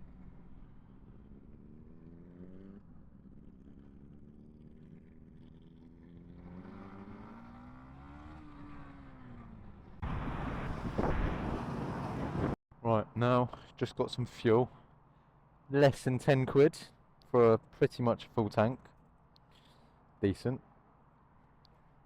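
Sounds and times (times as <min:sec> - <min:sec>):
motorcycle engine accelerating: 0:00.0 - 0:12.6
loud rushing noise: 0:10.0 - 0:12.6.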